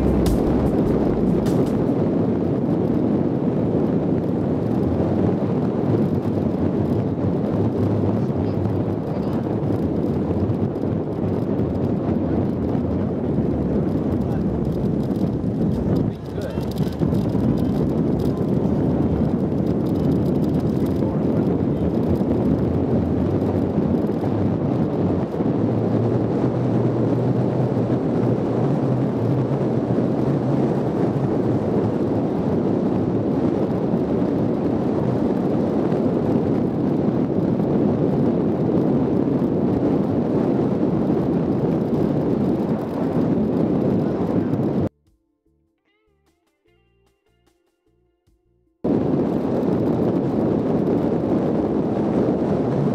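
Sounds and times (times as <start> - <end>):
off-road vehicle engine: 0.0 - 2.0, 7.7 - 31.3
wind on microphone: 0.0 - 44.9, 48.8 - 52.9.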